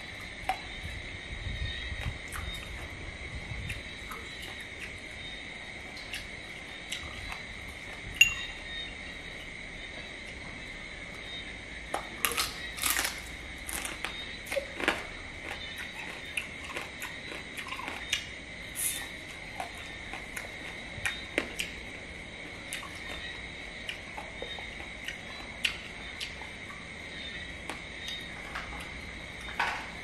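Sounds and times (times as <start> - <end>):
high-pitched whine: 8.0 - 14.4
chewing crab: 12.0 - 30.0.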